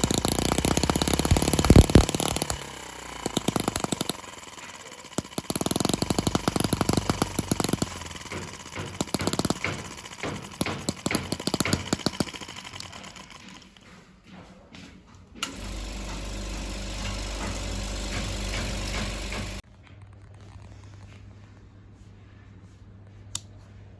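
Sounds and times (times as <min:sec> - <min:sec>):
small model engine firing: 0:00.0 - 0:13.7, 0:15.4 - 0:19.6.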